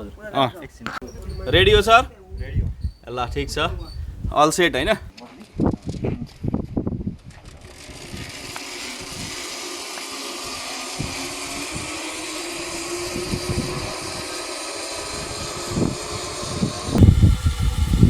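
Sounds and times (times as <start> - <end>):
zipline pulleys whirring on cable: 5.8 - 18.0.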